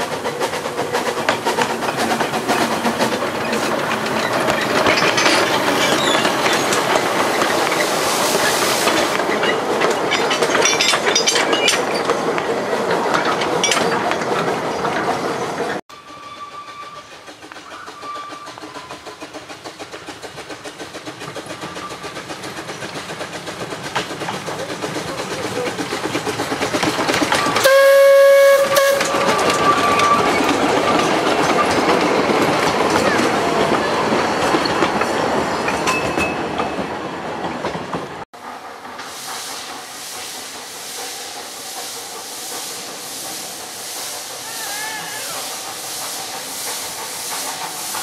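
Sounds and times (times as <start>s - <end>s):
train wheels clattering past: 16.0s - 48.0s
train whistle toot: 27.6s - 29.3s
steady hiss: 38.6s - 48.0s.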